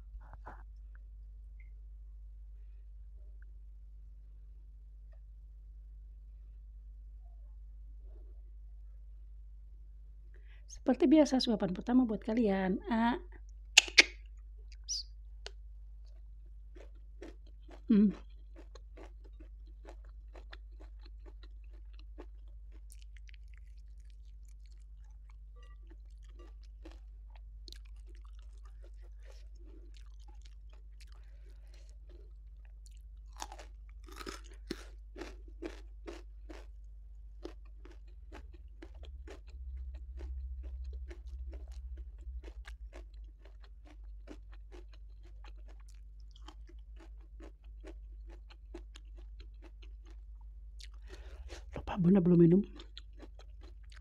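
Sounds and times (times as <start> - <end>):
steady low hum: 0.0 - 54.0
chewing and crunching food: 13.4 - 54.0
wet mouth clicks: 13.8 - 15.6.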